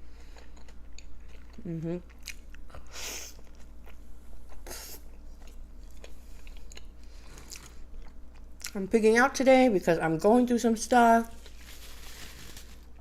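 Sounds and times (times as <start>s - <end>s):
person chewing food: 0.0s - 8.8s.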